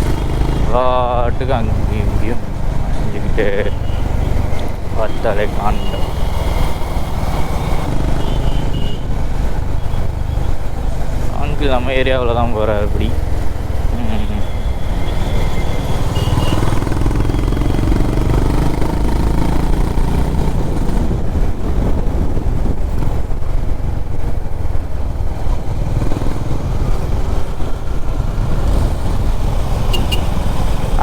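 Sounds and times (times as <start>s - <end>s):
motorcycle engine running: 0.0s - 31.0s
wind rumble on microphone: 18.1s - 29.6s.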